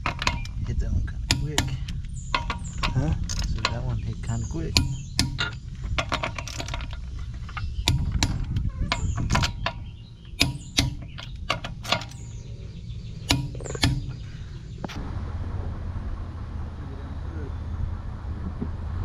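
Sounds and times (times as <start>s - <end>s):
hand tools clicking and knocking: 0.0s - 12.4s, 13.2s - 15.0s
low background rumble: 0.0s - 19.0s.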